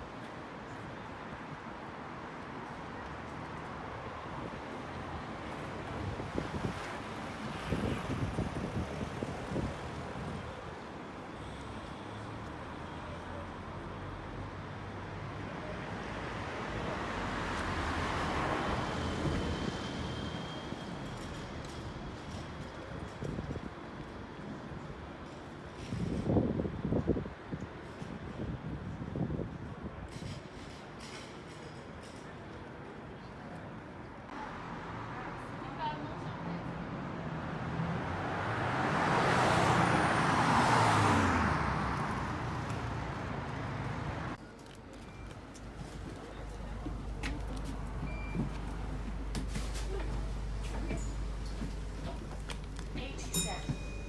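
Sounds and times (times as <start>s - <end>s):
low traffic hum: 34.2s - 54.0s.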